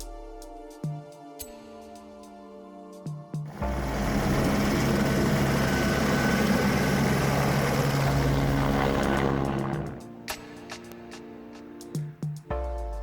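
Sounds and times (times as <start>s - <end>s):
helicopter engine and rotor: 3.5s - 10.1s.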